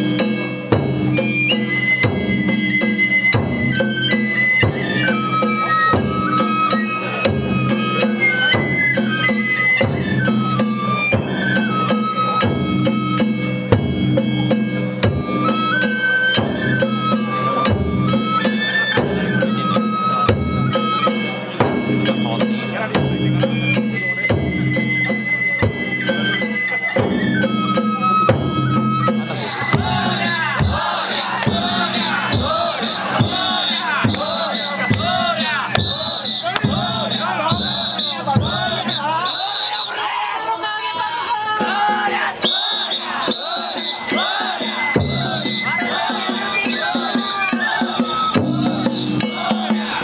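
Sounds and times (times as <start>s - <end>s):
drum and gong strikes: 0.0s - 1.2s, 12.4s - 15.4s, 20.3s - 24.5s, 29.2s - 39.0s, 44.0s - 47.2s, 47.9s - 50.0s
high flute melody: 1.2s - 13.4s, 15.2s - 21.1s, 23.6s - 40.2s, 41.7s - 49.5s
transverse flute long notes: 23.9s - 40.2s
regular drum beats: 29.1s - 39.3s.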